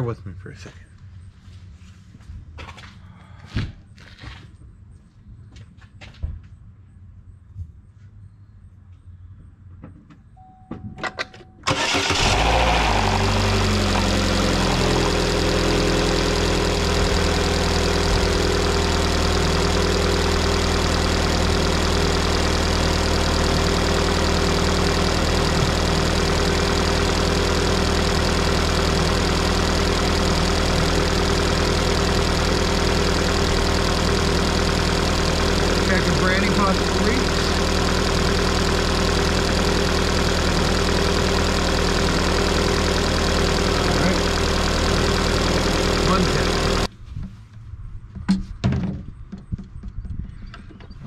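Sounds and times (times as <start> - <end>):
car engine cranking and starting: 11.0 - 46.9
car engine idling: 11.7 - 46.9.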